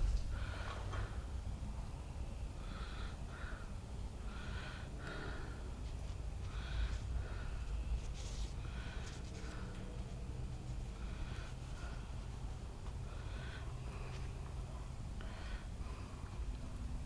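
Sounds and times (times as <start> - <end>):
person breathing: 0.0 - 1.4, 2.3 - 17.0
steady low hum: 0.0 - 17.0.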